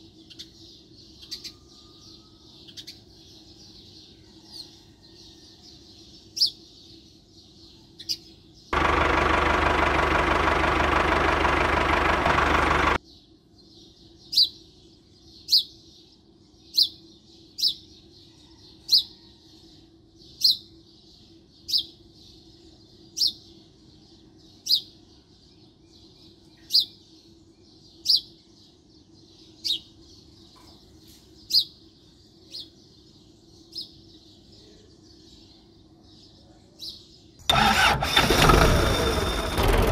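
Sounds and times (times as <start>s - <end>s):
bird chirping: 0.0s - 19.3s, 20.2s - 38.2s
loud dense noise: 8.8s - 13.0s.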